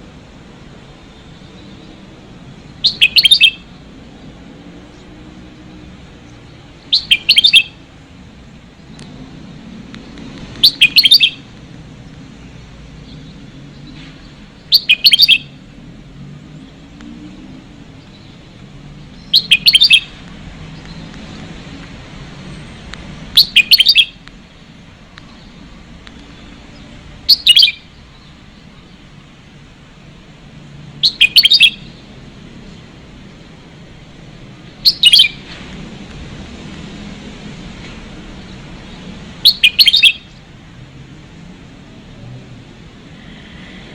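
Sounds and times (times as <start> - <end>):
bird song quick chirping: 1.2 - 4.3, 6.2 - 7.8, 10.0 - 15.6, 16.7 - 21.8, 23.4 - 29.1, 31.0 - 33.5, 34.6 - 35.6, 38.4 - 40.5.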